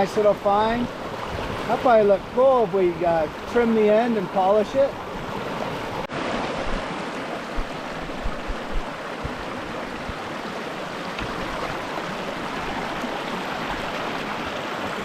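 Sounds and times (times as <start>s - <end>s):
creek rushing over rocks: 0.0s - 15.0s
low bumps: 7.5s - 10.2s.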